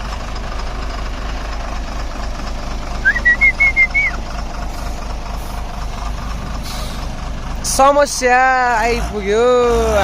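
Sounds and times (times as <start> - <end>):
truck engine running: 0.0 - 10.0
short high beeps: 3.1 - 4.2.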